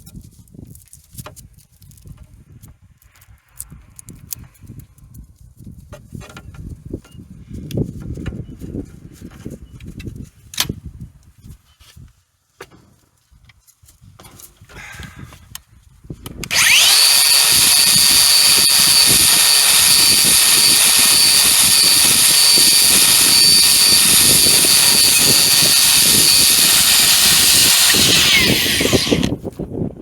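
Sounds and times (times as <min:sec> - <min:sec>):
power tool whining and scrubbing: 0:16.4 - 0:29.4.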